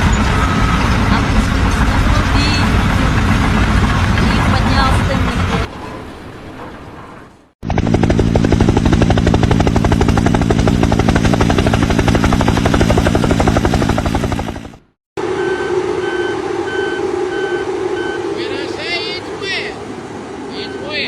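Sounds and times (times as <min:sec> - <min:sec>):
machine hum: 0:07.6 - 0:21.0
backup alarm beeping: 0:15.2 - 0:18.8, 0:20.6 - 0:21.0.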